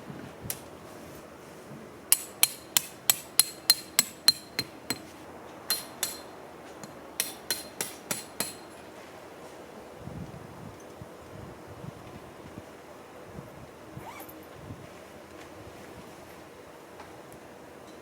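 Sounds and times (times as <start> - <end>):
hammer blows on metal: 2.1 - 8.8.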